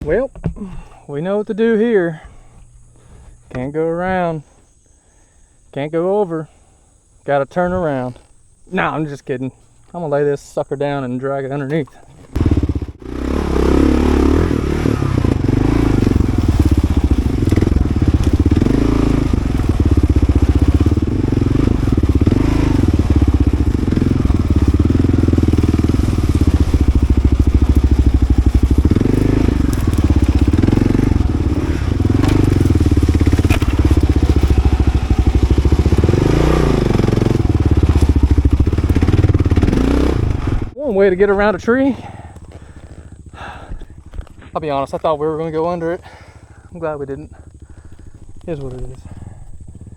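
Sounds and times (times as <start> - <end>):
motorcycle engine revving: 11.7 - 49.9.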